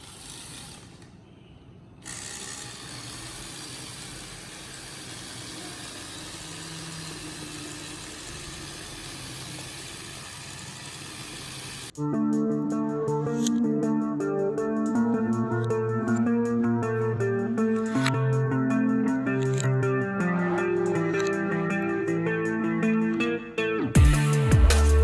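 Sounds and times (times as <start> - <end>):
small electric motor whirring: 0.0 - 1.2, 2.0 - 12.0, 15.5 - 22.0.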